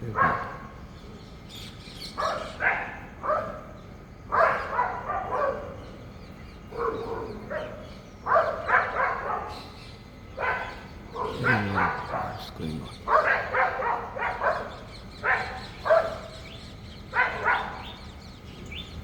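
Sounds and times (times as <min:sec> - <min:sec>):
animal cries: 0:00.0 - 0:00.7, 0:06.7 - 0:18.2.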